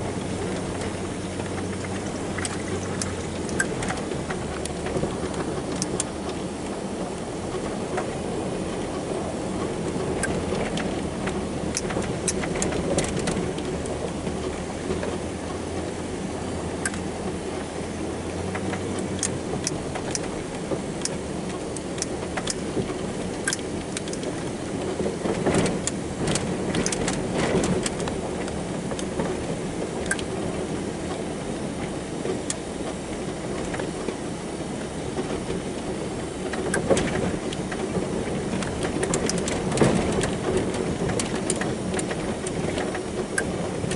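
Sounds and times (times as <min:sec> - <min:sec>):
engine running: 0:00.0 - 0:43.9
clicks and rattles: 0:25.3 - 0:29.3, 0:36.5 - 0:43.9.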